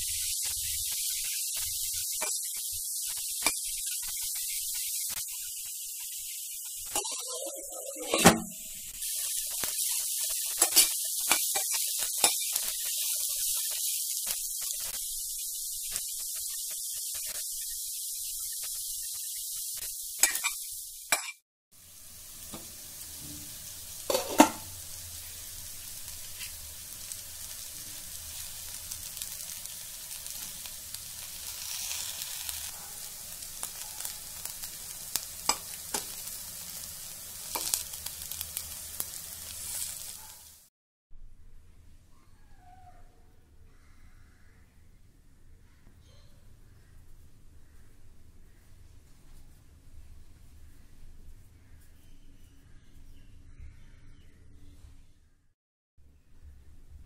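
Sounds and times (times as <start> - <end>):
aubergine sizzling in a pan: 0.0 - 40.7
metal spoon scraping a pan: 6.9 - 12.7, 20.2 - 21.4, 24.1 - 24.7.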